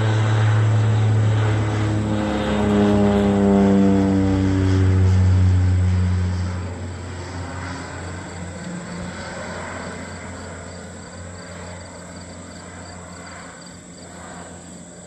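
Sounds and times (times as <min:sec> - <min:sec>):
propeller engine droning: 0:00.0 - 0:15.0
insect chirping: 0:07.0 - 0:15.0.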